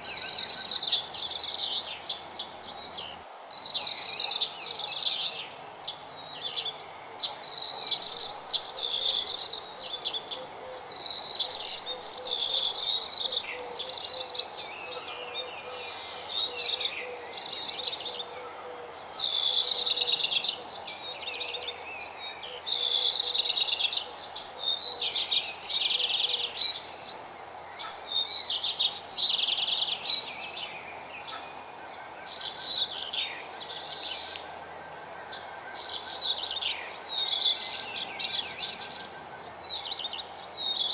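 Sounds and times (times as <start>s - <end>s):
faint background noise: 0.0s - 40.9s.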